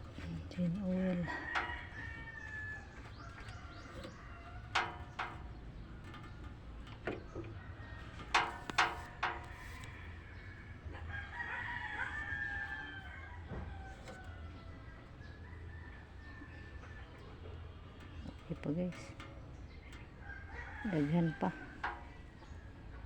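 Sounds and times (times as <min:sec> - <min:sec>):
rooster crowing: 0:01.2 - 0:04.6, 0:09.6 - 0:17.1.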